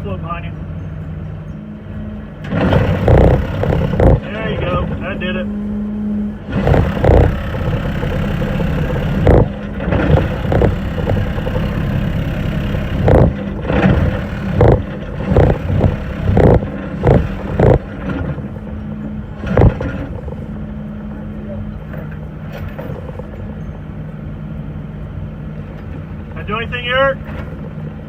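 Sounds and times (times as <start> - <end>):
engine running: 1.6 - 28.0
loud knocks: 2.5 - 4.8, 6.5 - 18.7, 19.4 - 20.6.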